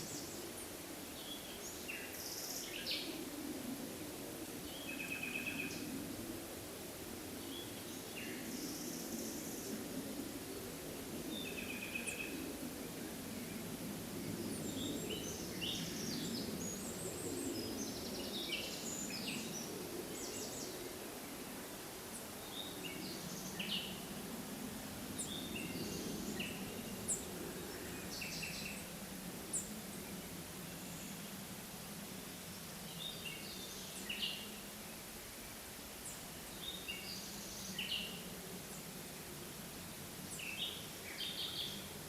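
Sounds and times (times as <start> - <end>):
low rushing background noise: 0.0 - 42.0.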